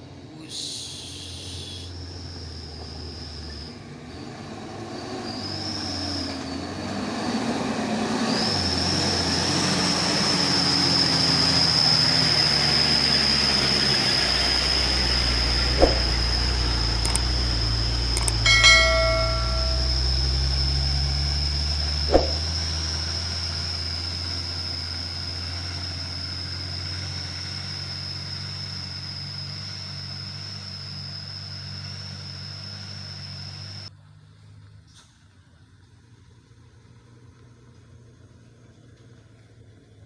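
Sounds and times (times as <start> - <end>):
diesel truck engine drone: 0.0 - 40.0
high whine: 12.3 - 25.0
brief ringing tone: 18.2 - 20.9, 22.1 - 22.4.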